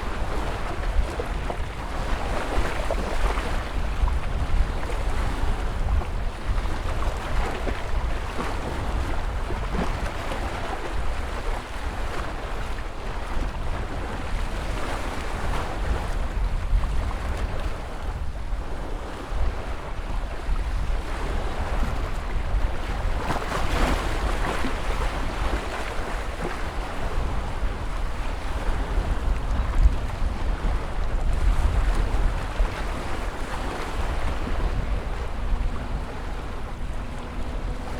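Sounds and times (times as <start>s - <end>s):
ocean waves breaking: 0.0s - 37.9s.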